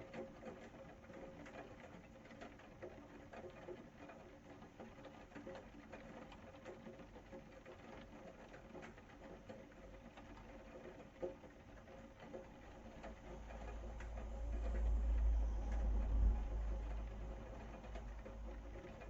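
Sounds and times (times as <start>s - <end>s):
drips and ticks: 0.0s - 19.0s
rain pattering: 0.0s - 19.0s
deep low rumble: 13.2s - 19.0s.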